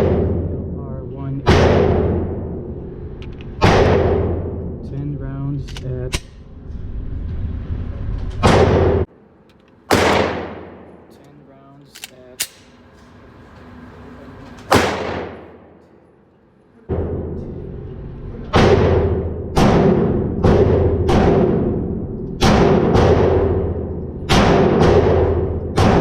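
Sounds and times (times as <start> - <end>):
pistol shots echoing: 9.9 - 11.2, 14.7 - 15.8.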